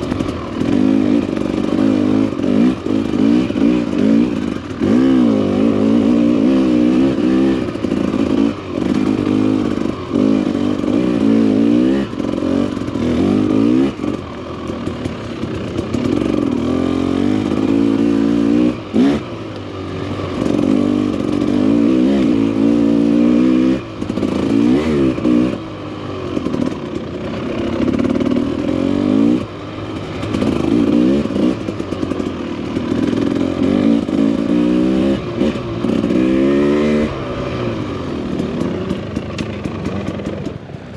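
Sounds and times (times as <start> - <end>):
dirt bike engine revving: 0.0 - 40.6.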